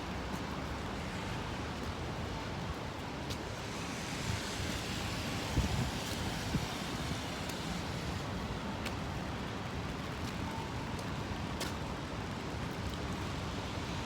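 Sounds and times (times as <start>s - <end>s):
city street traffic: 0.0s - 14.0s
wind buffeting microphone: 2.7s - 8.8s.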